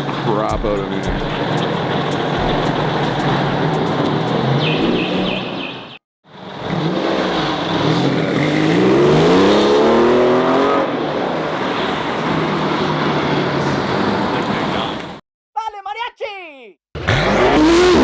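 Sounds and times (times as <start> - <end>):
car engine revving: 0.0 - 5.7, 6.4 - 14.4, 17.0 - 18.0.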